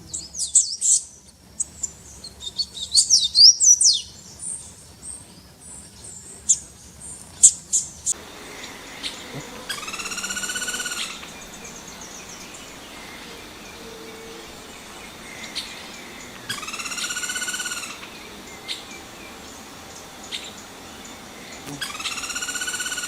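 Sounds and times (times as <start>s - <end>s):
long nasal bird calls: 0.0s - 23.0s
steady background hiss: 0.0s - 23.0s.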